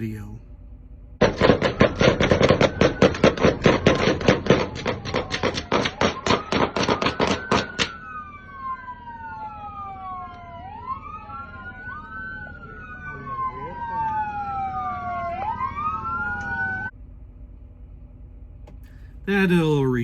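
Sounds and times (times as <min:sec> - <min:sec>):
rapid gunshots: 0:01.2 - 0:07.9
police sirens wailing: 0:01.8 - 0:17.0.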